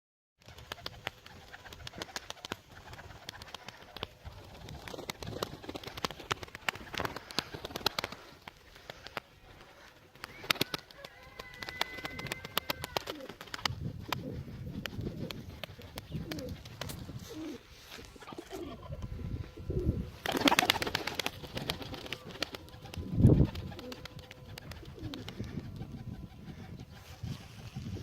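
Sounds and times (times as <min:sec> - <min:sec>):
pigeons cooing: 0:10.3 - 0:28.0.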